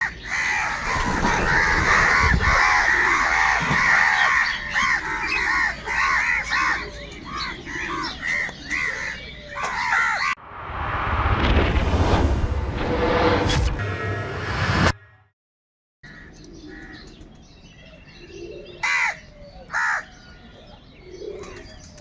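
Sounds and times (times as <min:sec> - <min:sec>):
crows cawing: 0:00.0 - 0:10.4, 0:16.0 - 0:17.2, 0:18.3 - 0:21.8
rushing noise: 0:10.3 - 0:15.0.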